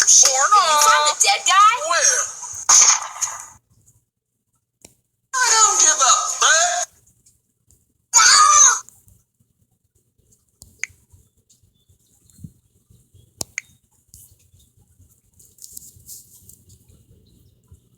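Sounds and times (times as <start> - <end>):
short loud voice burst: 5.4 - 6.9.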